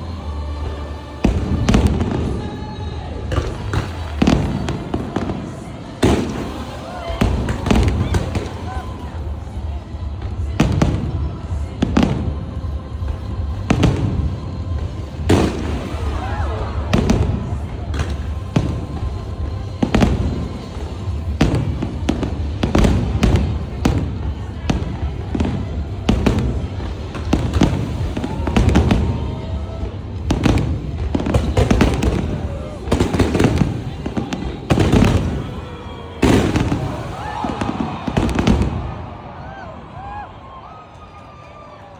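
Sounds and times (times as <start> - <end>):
fireworks bangs: 0.0 - 41.5
music playing: 0.0 - 41.9.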